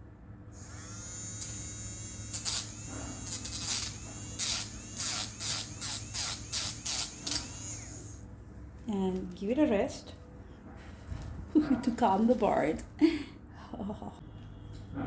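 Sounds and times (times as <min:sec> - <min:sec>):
electric grinder whining: 0:00.6 - 0:08.2.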